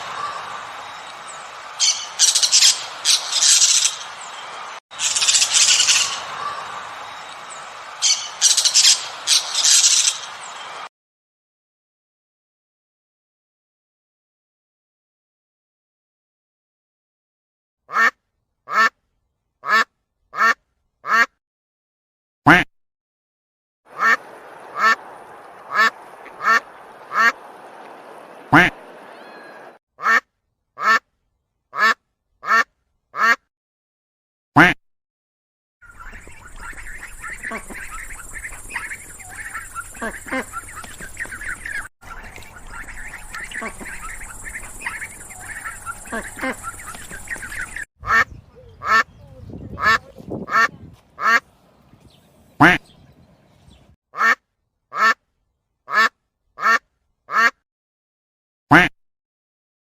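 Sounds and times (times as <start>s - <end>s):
duck quacking: 17.9s - 18.9s, 19.6s - 21.3s, 23.9s - 30.2s, 30.8s - 31.0s, 31.7s - 33.4s, 34.6s - 34.8s, 35.9s - 51.5s, 52.6s - 52.9s, 54.2s - 55.2s, 55.9s - 57.6s, 58.7s - 58.9s.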